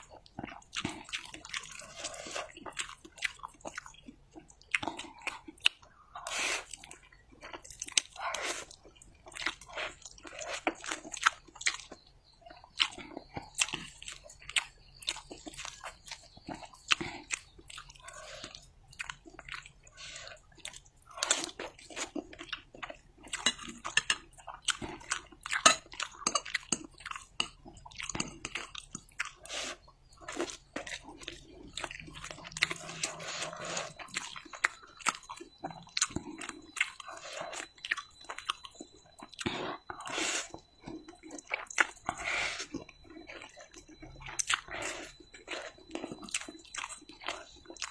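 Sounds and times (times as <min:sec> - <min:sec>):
wet chewing of noodles: 0:00.0 - 0:47.9.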